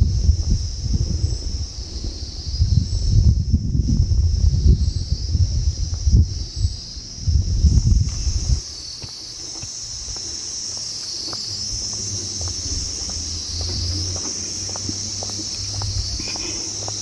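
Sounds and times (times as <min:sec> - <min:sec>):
insects shrilling: 0:04.8 - 0:17.0
heavy low rumble: 0:07.2 - 0:08.8, 0:11.2 - 0:17.0.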